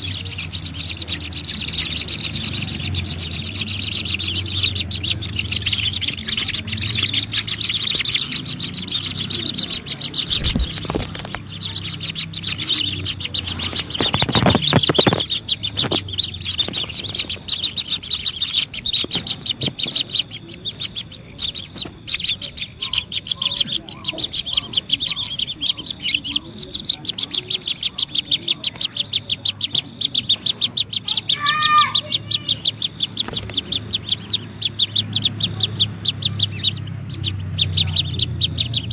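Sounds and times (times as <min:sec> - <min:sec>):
small birds chirping: 0:00.0 - 0:38.9
low rustling thump: 0:10.2 - 0:11.4.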